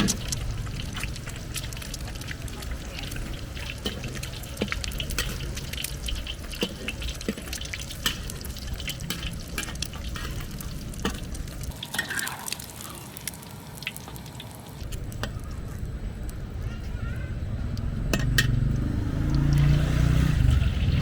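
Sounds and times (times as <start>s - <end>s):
liquid stirring and dripping: 0.0s - 15.5s
metal utensil scraping a wok: 2.5s - 12.9s
low rumble: 14.8s - 21.0s.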